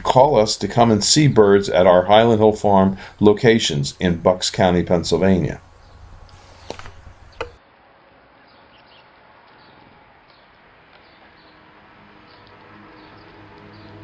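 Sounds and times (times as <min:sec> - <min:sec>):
small birds chirping: 0:05.6 - 0:07.6, 0:08.4 - 0:14.0.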